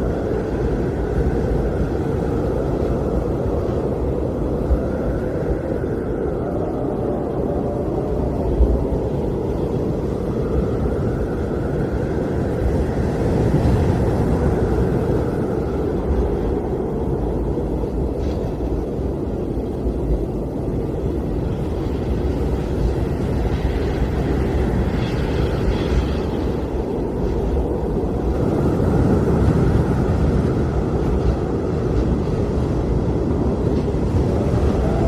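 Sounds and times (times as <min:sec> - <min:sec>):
blizzard wind roaring: 0:00.0 - 0:35.0.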